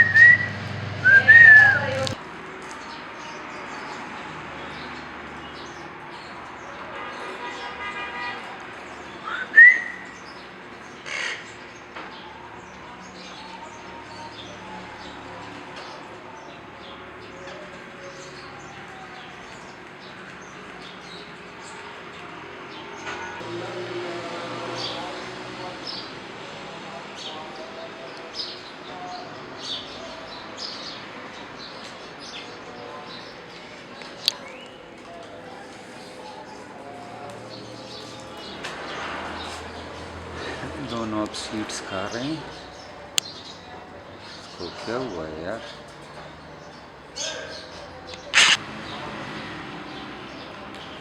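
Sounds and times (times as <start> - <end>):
lovebirds chirping: 0.0 - 2.8, 46.4 - 49.2
lovebirds calling: 0.0 - 8.1, 39.6 - 51.0.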